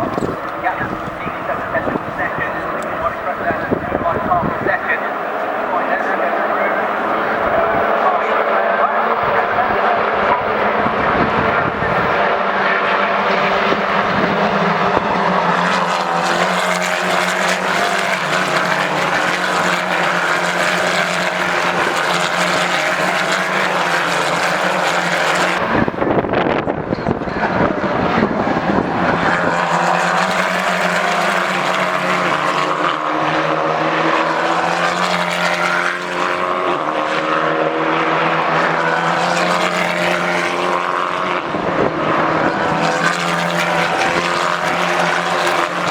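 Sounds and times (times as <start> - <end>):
race car engines at high revs: 0.0 - 45.9.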